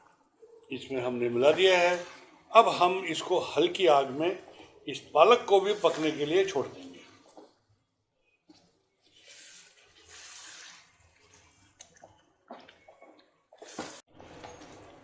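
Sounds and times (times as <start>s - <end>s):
wet sloshing in a pan: 8.5s - 14.1s.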